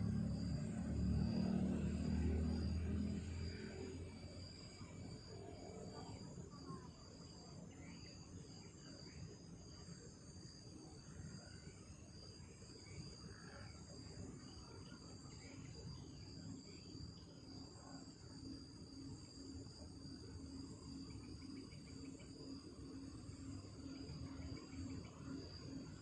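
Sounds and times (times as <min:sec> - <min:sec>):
low rumbling noise: 0:00.0 - 0:04.4
night insects chirring: 0:00.0 - 0:26.0.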